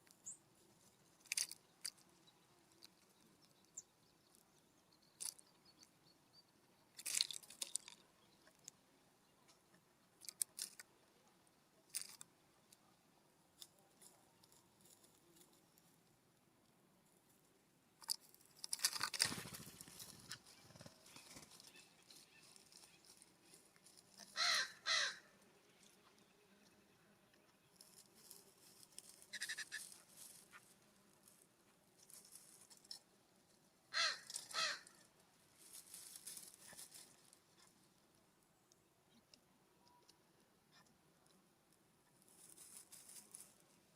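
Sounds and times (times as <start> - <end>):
birds pecking and cracking seed: 0.0 - 43.9
crow cawing: 24.3 - 25.3, 33.9 - 35.0.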